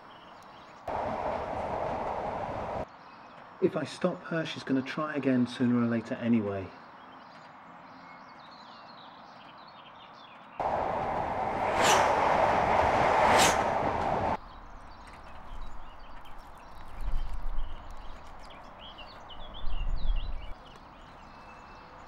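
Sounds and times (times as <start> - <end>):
birdsong chirps: 0.0 - 0.9, 6.6 - 11.4, 14.4 - 22.0
train wheels rumbling on rails: 0.9 - 2.8, 10.6 - 15.8.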